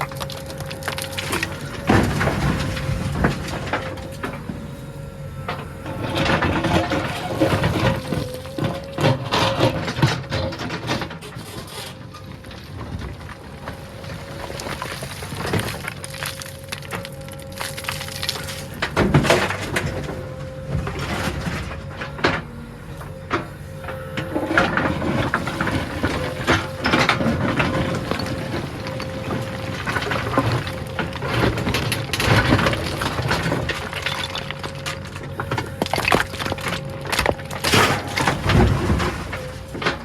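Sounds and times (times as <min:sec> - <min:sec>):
backhoe engine whining: 0:00.0 - 0:40.0
bucket knocking and crunching soil: 0:25.3 - 0:40.0.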